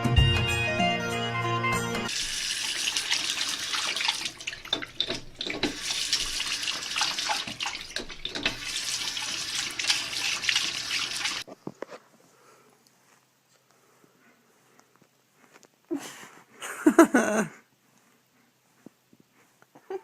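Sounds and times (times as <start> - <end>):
tap water running and splashing: 2.1 - 11.5.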